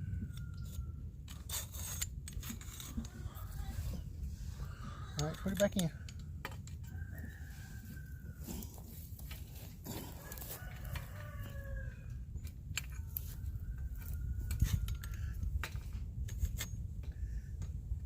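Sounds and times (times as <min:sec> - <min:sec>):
rooster crowing: 0:06.8 - 0:08.9, 0:09.9 - 0:12.2.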